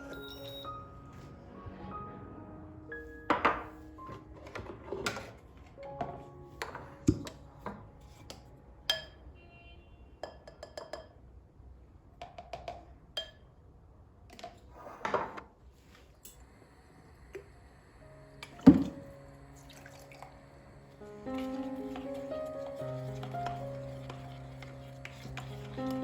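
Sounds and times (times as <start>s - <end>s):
soft background music: 0.0s - 9.6s, 17.7s - 26.0s
dishes and glassware clinking: 8.9s - 9.2s.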